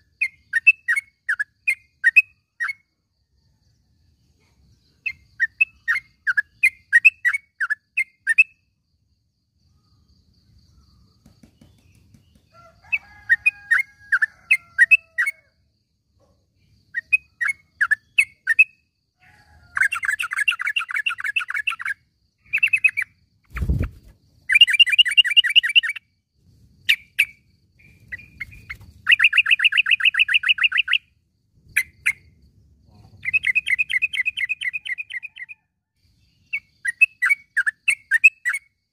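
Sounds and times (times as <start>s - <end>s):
bird rattling trills: 22.6s - 26.0s.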